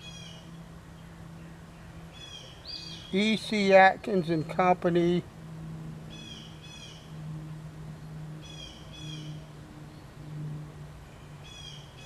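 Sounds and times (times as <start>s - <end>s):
bird chirping: 0.0s - 12.0s
steady low hum: 0.0s - 12.0s.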